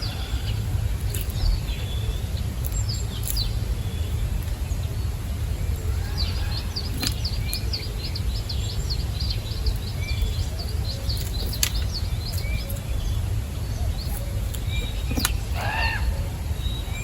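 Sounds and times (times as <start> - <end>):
steady low rumble: 0.0 - 17.0
sharp clicks: 14.0 - 15.7
songbird calling short high notes: 14.8 - 17.0.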